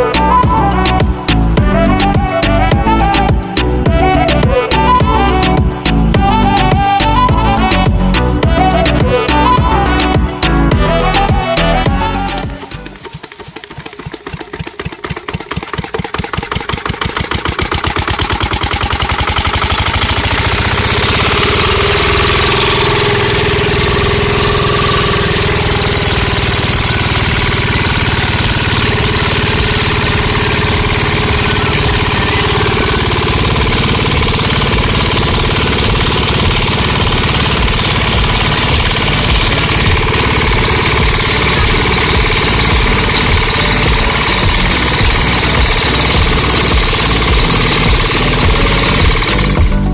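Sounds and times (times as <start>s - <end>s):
miniature diesel engine running: 0.0s - 49.9s.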